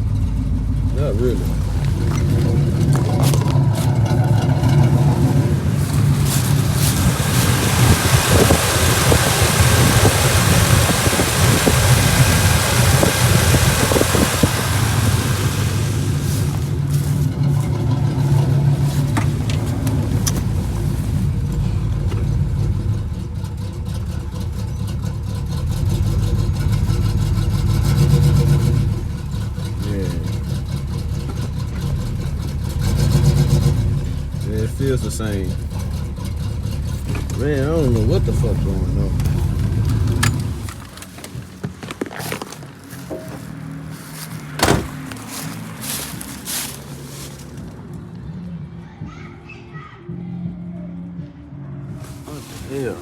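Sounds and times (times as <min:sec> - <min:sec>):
car engine rough idle: 0:00.0 - 0:48.3, 0:52.0 - 0:53.0.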